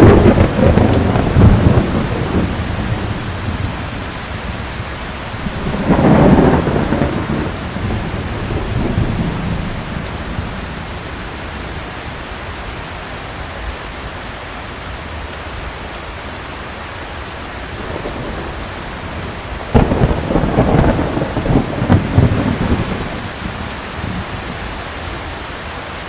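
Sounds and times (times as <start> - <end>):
thunder crack and rumble: 0.0 - 12.2, 17.6 - 25.4
heavy rain: 0.0 - 26.0.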